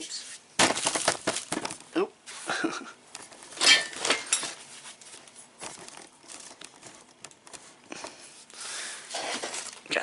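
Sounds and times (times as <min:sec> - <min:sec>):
packing material crinkling: 0:04.6 - 0:08.4.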